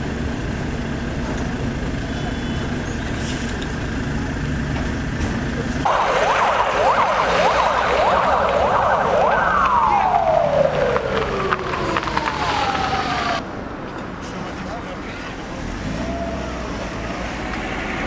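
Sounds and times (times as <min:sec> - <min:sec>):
car engine and road rumble: 0:00.0 - 0:18.0
emergency siren yelp and wail: 0:05.8 - 0:13.4.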